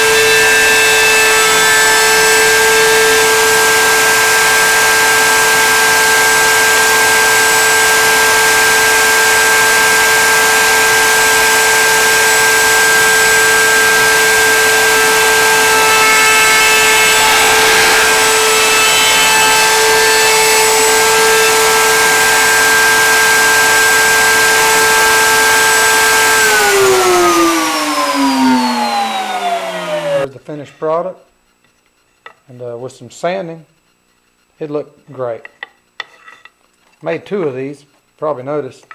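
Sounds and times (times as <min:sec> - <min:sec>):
electric router whining: 0:00.0 - 0:30.3.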